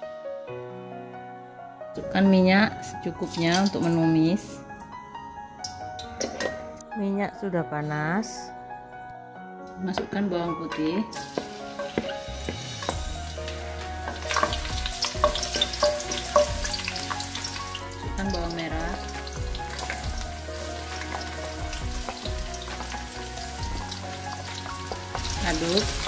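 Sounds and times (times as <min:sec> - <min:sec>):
garlic sizzling in hot oil: 0:11.0 - 0:26.0
spatula scraping a wok: 0:11.2 - 0:13.2, 0:14.0 - 0:17.2.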